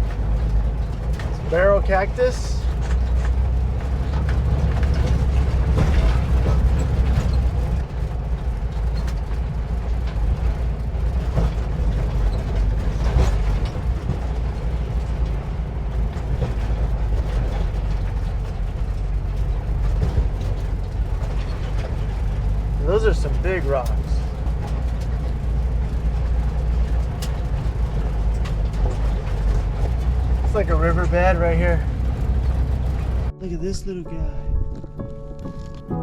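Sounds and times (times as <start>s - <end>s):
van engine droning: 0.0s - 33.7s
body rattling over rocks: 24.2s - 33.3s.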